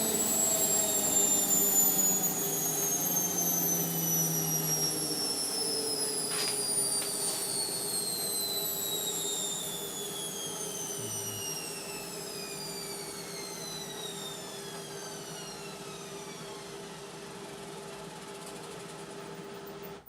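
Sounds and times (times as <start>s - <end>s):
washing machine motor whine: 0.0s - 20.0s
steady low hum: 10.6s - 12.4s.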